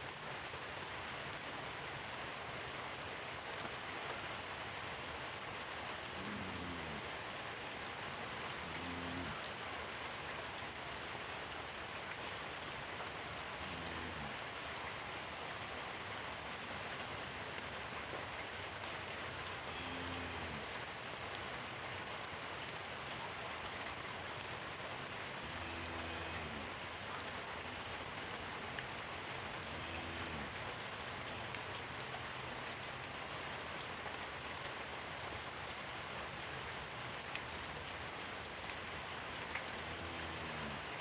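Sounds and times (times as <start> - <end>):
steady rain: 0.0 - 41.0
frog croaking low: 6.0 - 7.8, 8.4 - 10.3, 13.5 - 15.0, 18.9 - 20.8, 25.4 - 28.2, 29.4 - 31.7, 39.4 - 41.0.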